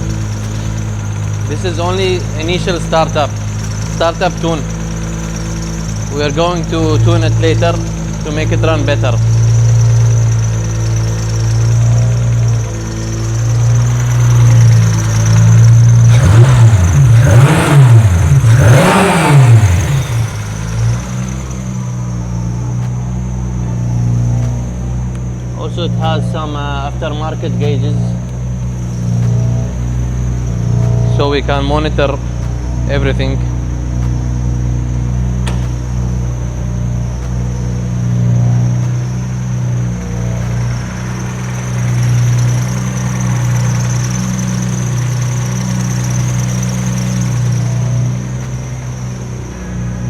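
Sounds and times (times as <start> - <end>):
car engine idling and revving: 0.0 - 50.0
sharp click: 35.4 - 36.1.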